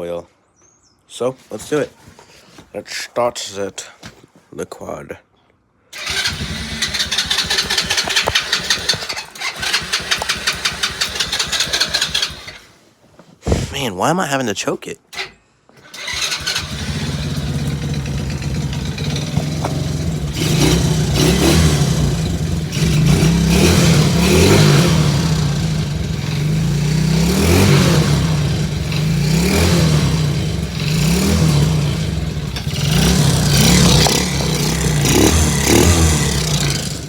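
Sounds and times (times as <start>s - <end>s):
quad engine idling and revving: 6.0s - 12.7s, 15.8s - 37.0s.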